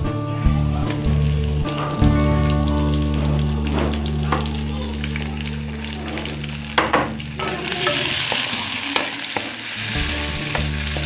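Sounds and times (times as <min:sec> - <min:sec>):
food frying in oil: 0:01.0 - 0:11.0
sharp knocks in a pan: 0:06.8 - 0:08.4.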